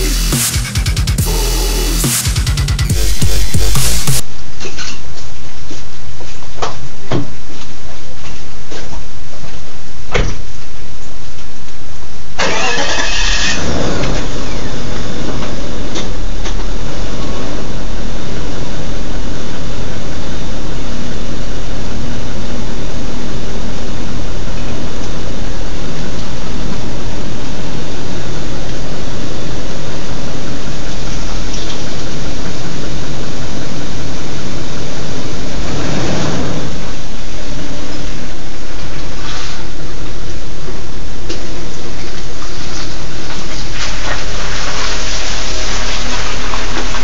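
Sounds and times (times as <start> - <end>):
car engine starting and idling: 12.4 - 17.8.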